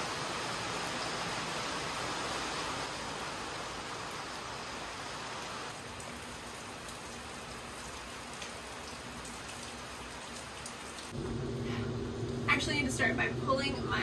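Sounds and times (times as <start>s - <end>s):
steady rain falling: 0.0s - 14.0s
low hum: 11.2s - 14.0s.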